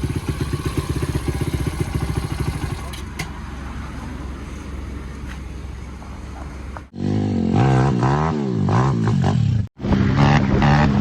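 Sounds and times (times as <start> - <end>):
pit bike engine revving: 0.0 - 2.9, 7.0 - 11.0
pit bike engine rumbling: 0.0 - 11.0.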